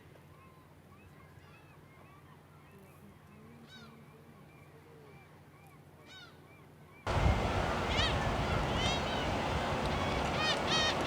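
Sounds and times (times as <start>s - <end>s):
birds chirping: 7.1s - 11.0s.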